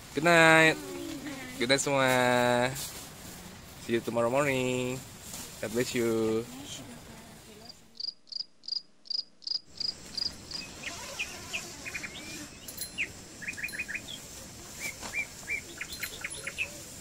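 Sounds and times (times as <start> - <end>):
cricket chirping: 8.0 - 11.5
birds chirping and trilling: 8.3 - 17.0.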